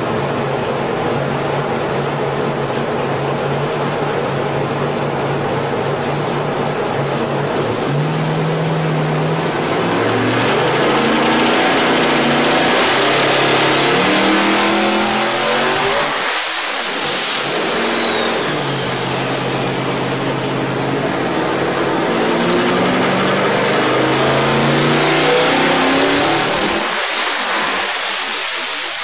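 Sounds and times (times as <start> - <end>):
racing engine revving hard: 7.6 - 29.0
turbo whistle: 17.4 - 19.0.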